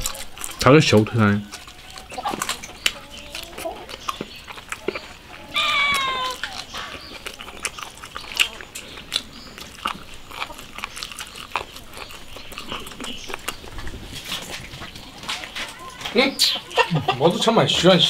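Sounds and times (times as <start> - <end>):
wet chewing and lip-smacking: 0.0 - 17.4
dog whining: 5.3 - 7.4.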